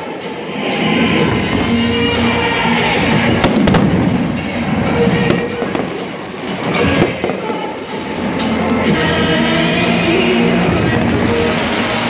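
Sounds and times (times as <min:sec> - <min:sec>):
music playing: 0:00.0 - 0:12.0
fireworks bangs and crackle: 0:01.3 - 0:08.2, 0:10.7 - 0:12.0.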